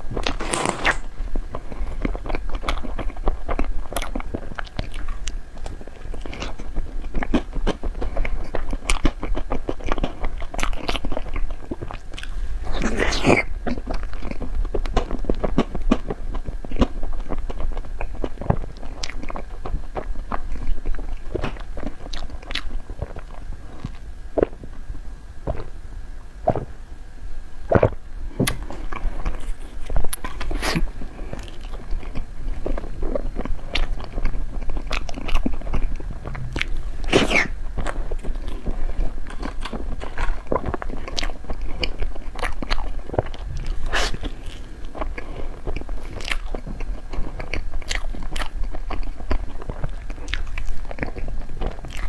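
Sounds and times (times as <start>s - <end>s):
food crunching: 0.0s - 24.6s, 27.7s - 52.0s
close-miked chewing and smacking: 1.4s - 24.8s, 25.4s - 25.7s, 27.7s - 52.0s
soft biting: 27.8s - 52.0s.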